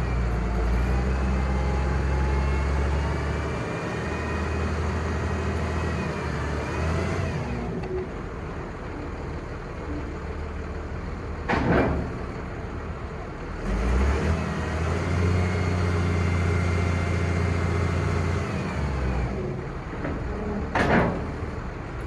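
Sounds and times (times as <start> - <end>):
diesel truck engine idling: 8.0 - 11.5.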